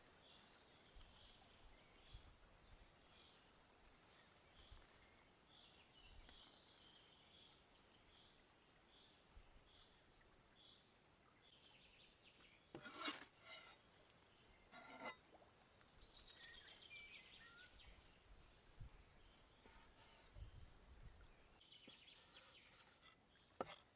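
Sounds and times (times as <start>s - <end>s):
songbirds calling: 0.2s - 23.9s
harsh rasping sounds: 12.8s - 13.8s, 14.8s - 15.2s, 22.3s - 23.9s.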